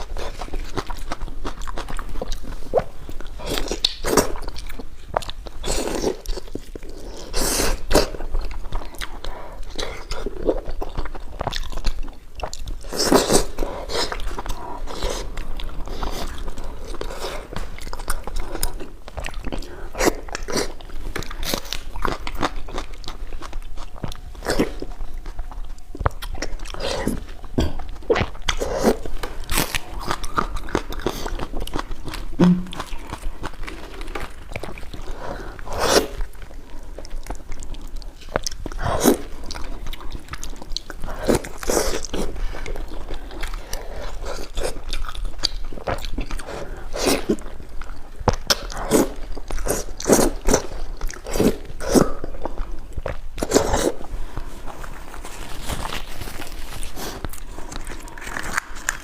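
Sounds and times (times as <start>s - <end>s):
person chewing crunchy food: 0.0s - 59.0s.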